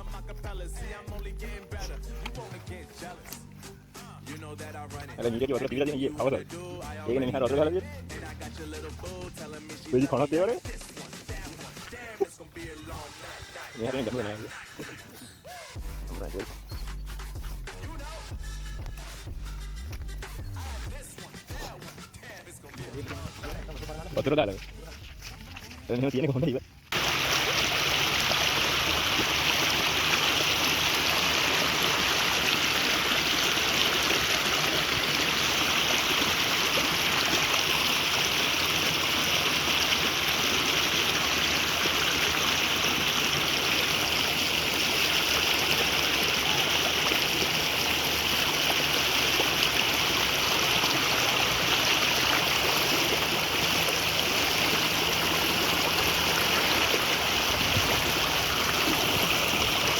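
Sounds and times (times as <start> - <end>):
flowing water rushing: 26.9 - 59.9.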